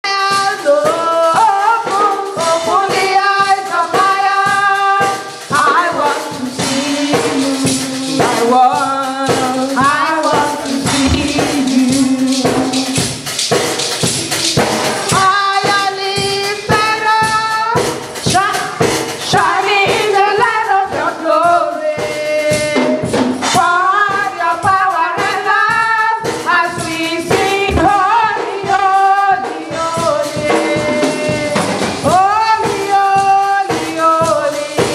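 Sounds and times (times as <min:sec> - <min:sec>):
tambourine shaking: 0:00.1 - 0:34.9
church choir singing: 0:14.0 - 0:15.3.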